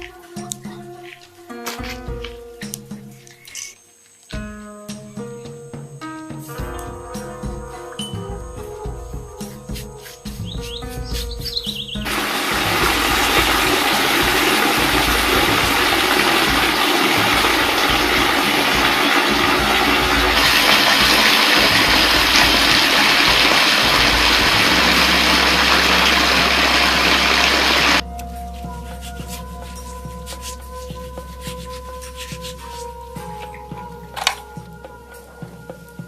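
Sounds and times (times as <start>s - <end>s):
rushing water: 12.0s - 28.0s.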